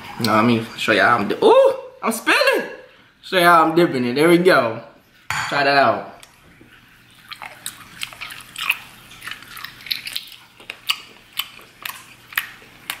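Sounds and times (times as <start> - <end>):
wet chewing of octopus: 6.2 - 13.0
lip smacks and sticky clicks: 7.3 - 13.0.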